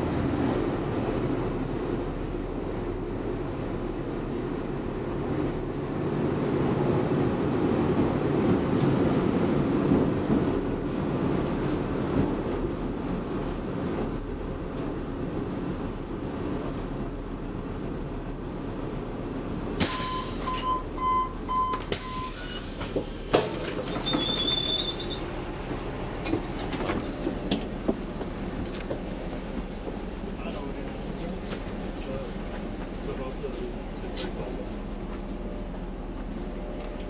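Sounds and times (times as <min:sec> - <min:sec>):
train carriage rumbling on track: 0:00.0 - 0:37.0
short beeps: 0:20.0 - 0:22.6.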